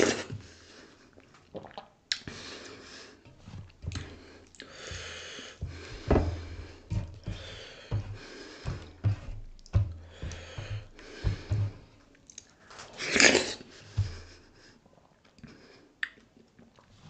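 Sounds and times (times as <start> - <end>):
wet chewing and mouth smacks: 1.2 - 2.3
breathy sound: 2.3 - 12.0, 13.7 - 14.7.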